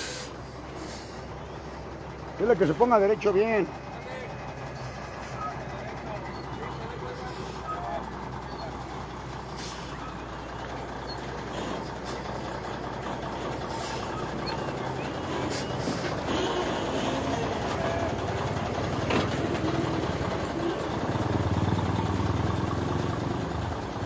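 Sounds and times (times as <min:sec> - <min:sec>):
people's voices: 0:00.0 - 0:24.0
truck engine running: 0:00.0 - 0:24.0.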